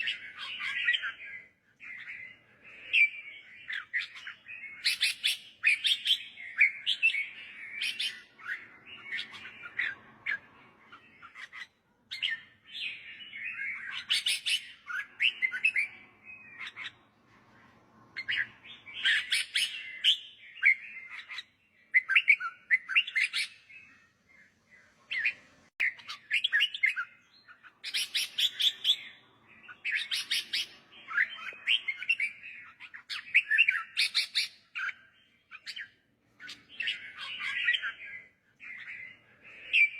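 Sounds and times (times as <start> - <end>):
bulbul chirping song: 0.0 - 17.1, 18.2 - 39.9.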